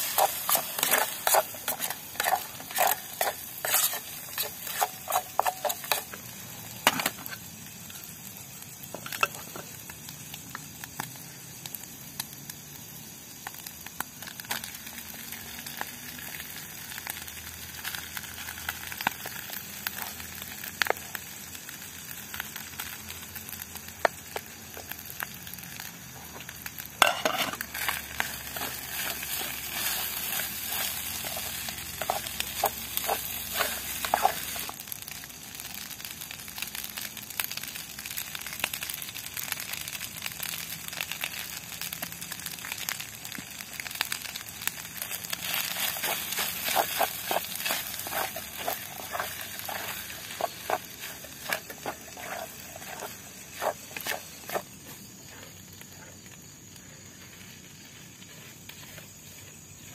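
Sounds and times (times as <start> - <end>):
spatula scraping and tapping pan: 0.0 - 6.2, 6.8 - 7.4, 27.0 - 34.7, 45.4 - 54.7
egg and rice sizzling in a pan: 0.0 - 59.9.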